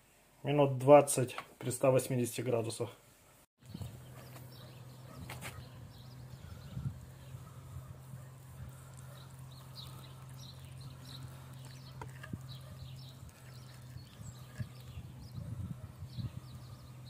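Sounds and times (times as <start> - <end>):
small birds chirping: 3.6 - 17.0
steady low hum: 3.6 - 17.0.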